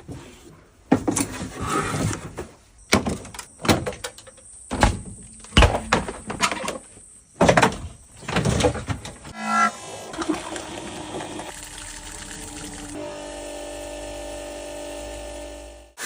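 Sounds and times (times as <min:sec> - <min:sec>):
sharp mechanical knocks and bangs: 0:04.7 - 0:06.8.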